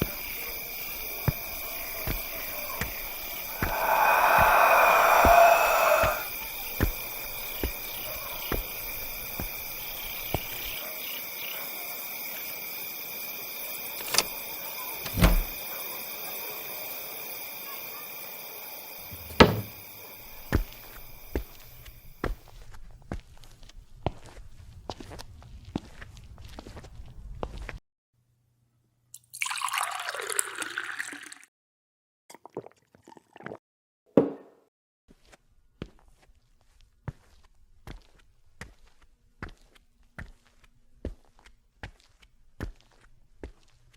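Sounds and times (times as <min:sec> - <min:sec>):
heavy thump: 0:15.0 - 0:15.6, 0:19.1 - 0:19.8
sharp thud: 0:15.1 - 0:15.6
sharp knocks: 0:19.2 - 0:19.8.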